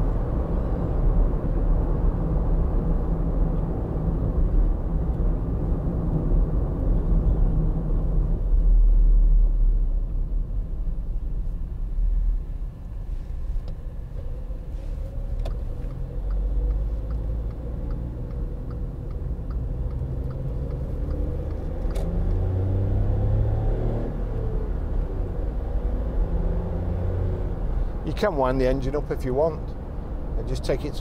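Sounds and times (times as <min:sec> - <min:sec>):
road rumble: 0:00.0 - 0:31.0
light regular ticking: 0:15.4 - 0:21.7.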